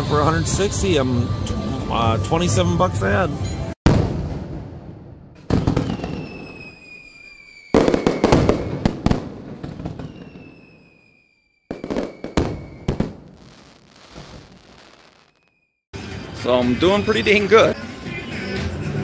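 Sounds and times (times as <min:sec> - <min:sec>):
fireworks banging and crackling: 0:03.8 - 0:15.6
firework whistle falling in pitch: 0:05.8 - 0:08.8, 0:09.9 - 0:13.1.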